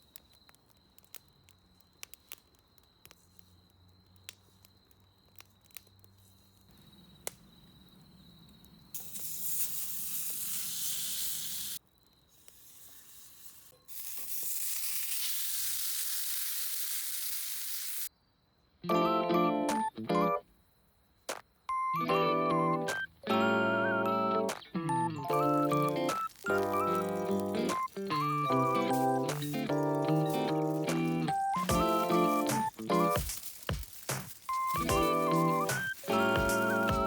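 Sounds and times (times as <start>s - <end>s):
faint crackles: 0.0s - 18.1s, 25.3s - 37.0s
steak sizzling: 9.0s - 11.8s, 12.5s - 18.1s, 25.2s - 37.0s.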